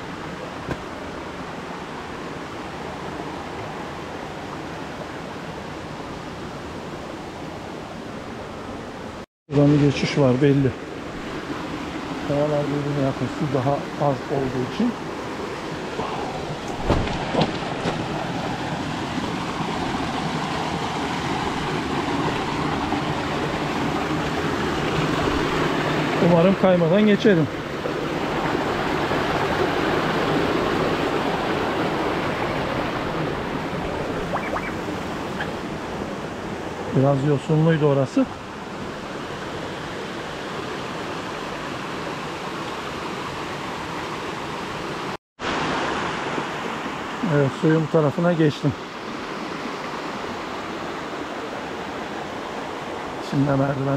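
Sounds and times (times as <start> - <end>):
stream water rushing over rocks: 0.0 - 53.9
brief knock: 0.6 - 0.9.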